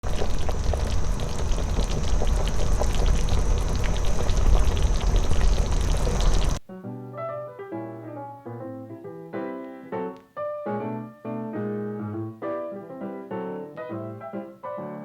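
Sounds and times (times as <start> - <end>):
water boiling in a pot: 0.0 - 6.6
piano music: 6.6 - 15.0.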